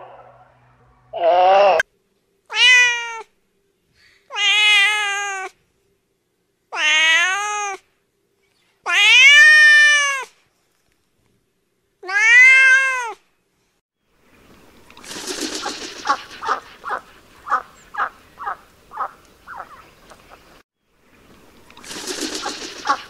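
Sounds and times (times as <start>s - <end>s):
cat meowing: 2.5s - 3.3s, 4.3s - 5.5s, 6.8s - 7.8s, 8.9s - 10.3s, 12.0s - 13.2s.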